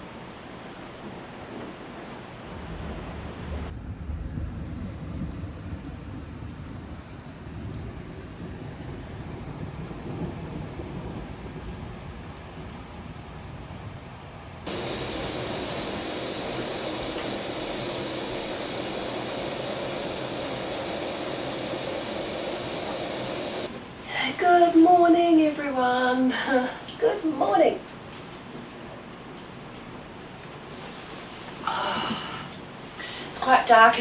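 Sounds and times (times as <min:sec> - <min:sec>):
low thunder rumble: 0:00.0 - 0:12.8
heavy rain: 0:00.0 - 0:13.3, 0:14.6 - 0:33.7.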